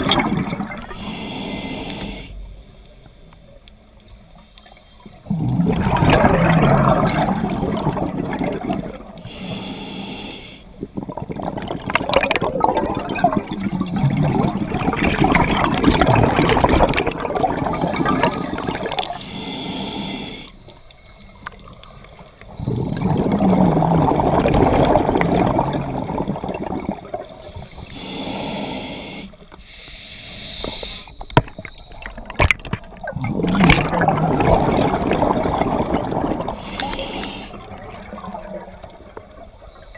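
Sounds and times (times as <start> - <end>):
exhaled bubbles rushing: 0.0 - 1.1, 5.2 - 9.3, 10.8 - 19.2, 22.4 - 27.9, 31.4 - 39.9
regulator hissing inhalations: 0.9 - 2.7, 9.2 - 10.8, 17.7 - 20.7, 27.2 - 31.3, 36.5 - 37.8.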